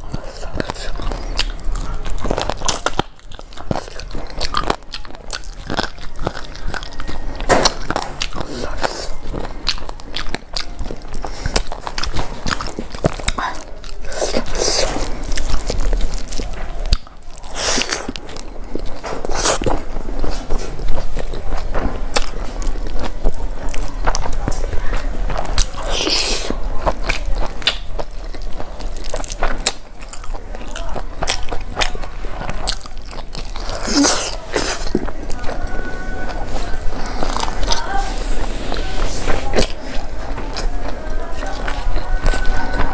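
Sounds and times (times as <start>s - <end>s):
wet mouth clicks: 0.0s - 21.5s, 25.3s - 35.2s
chewing and biting fried food: 0.0s - 42.9s.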